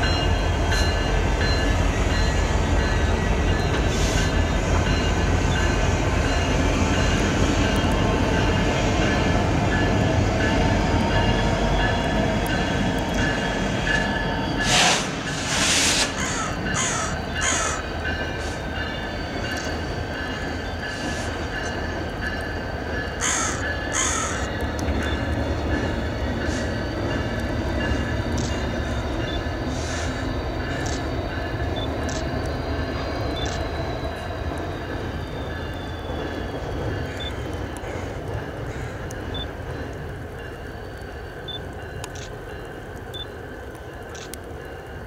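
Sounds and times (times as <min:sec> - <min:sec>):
locomotives rumbling over bridge: 0:00.0 - 0:45.0
crows cawing: 0:16.2 - 0:17.9, 0:23.2 - 0:24.5, 0:37.1 - 0:39.1.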